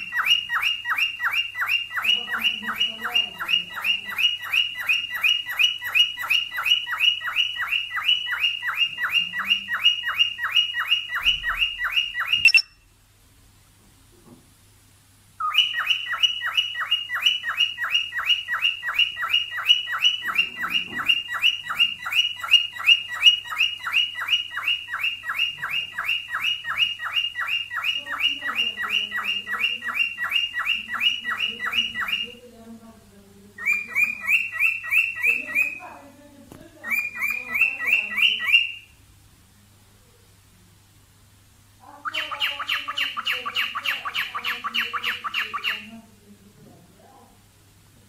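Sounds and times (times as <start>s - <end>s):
cockatiel chirping: 0.0s - 12.8s, 15.4s - 32.4s, 33.6s - 35.9s, 36.8s - 38.9s, 42.0s - 46.0s.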